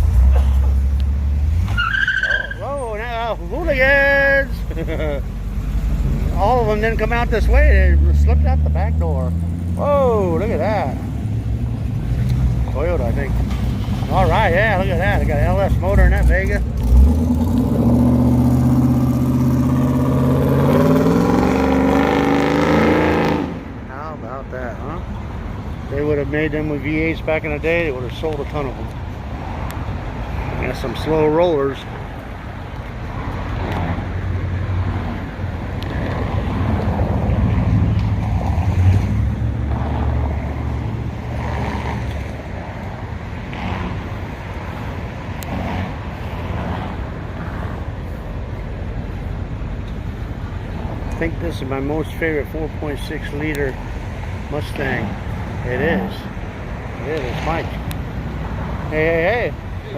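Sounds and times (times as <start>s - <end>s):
car engine driving off: 0.0s - 23.7s
car engine rumble passing: 0.0s - 59.9s
street noise: 0.0s - 59.9s.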